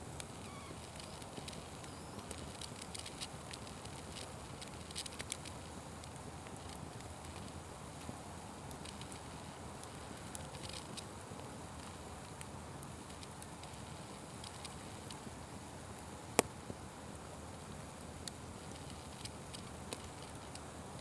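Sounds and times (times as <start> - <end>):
fire crackling: 0.1 - 21.0.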